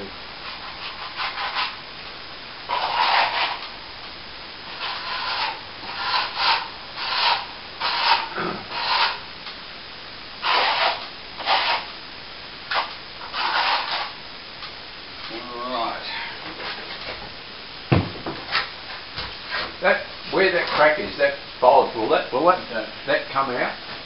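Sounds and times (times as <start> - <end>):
hand tool scraping plaster wall: 0.5 - 1.8, 2.7 - 3.6, 4.7 - 9.2, 10.4 - 11.9, 12.7 - 14.2.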